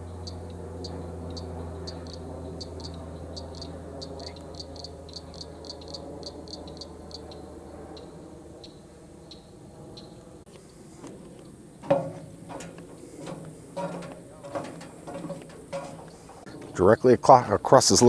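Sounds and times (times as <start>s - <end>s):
steady low hum: 0.0s - 18.0s
animal high clicking calls: 0.2s - 7.4s.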